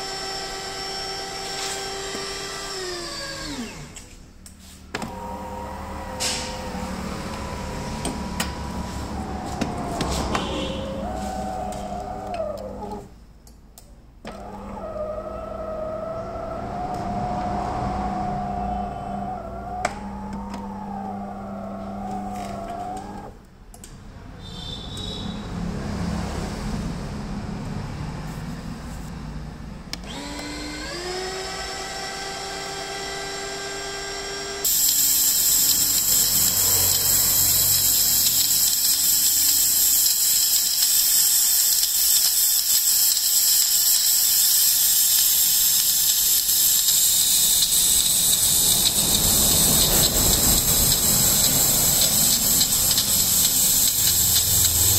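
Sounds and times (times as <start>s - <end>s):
espresso machine motor whirring: 0.0s - 4.0s, 4.9s - 13.1s, 14.3s - 23.3s, 30.0s - 54.9s
steam hissing: 34.6s - 54.9s.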